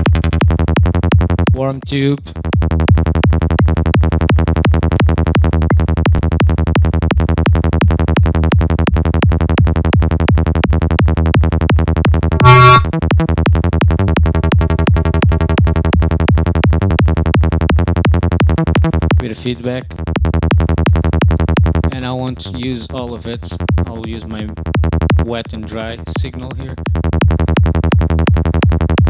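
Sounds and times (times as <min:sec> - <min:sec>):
synth bass looping short notes: 0:12.2 - 0:12.9.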